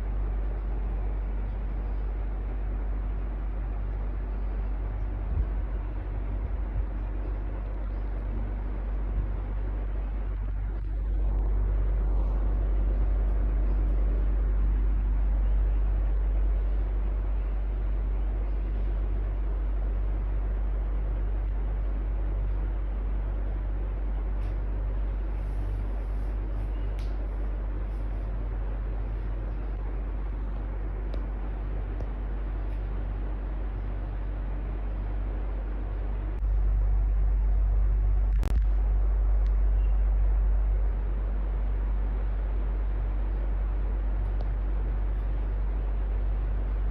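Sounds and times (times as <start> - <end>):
electric fan running: 0.0 - 46.9
fan click: 25.8 - 28.4.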